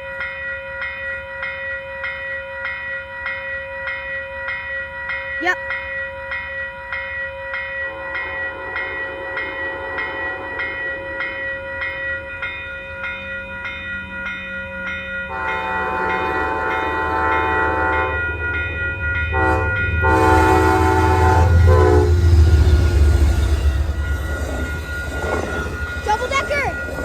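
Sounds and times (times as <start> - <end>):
crossing bell ringing: 0.0 - 27.0
train rumble: 7.9 - 27.0
train horn blasts: 8.1 - 11.2, 15.3 - 18.2, 19.3 - 23.8.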